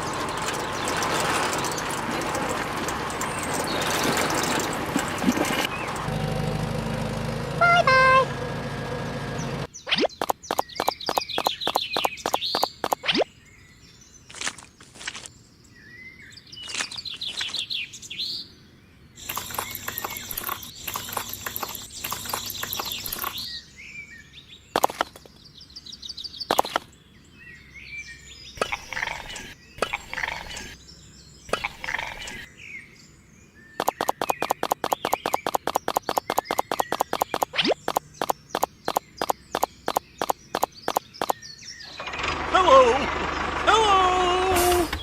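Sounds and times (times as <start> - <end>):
birds chirping: 0.0 - 6.4, 7.0 - 45.0
sharp clicks: 9.9 - 13.2, 19.2 - 23.5, 24.8 - 25.3, 26.5 - 26.9, 31.5 - 32.5, 33.8 - 41.4
fast even clicking: 10.0 - 13.2, 19.2 - 23.5, 26.5 - 26.9, 33.8 - 41.4.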